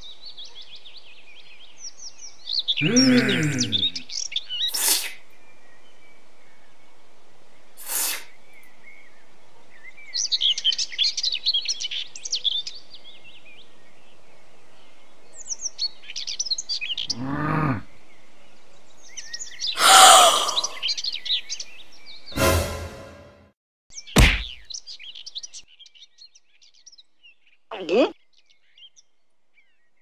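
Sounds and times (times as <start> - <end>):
small birds chirping: 0.0 - 22.3, 23.9 - 30.0
short hiss: 4.7 - 5.2, 7.8 - 8.3.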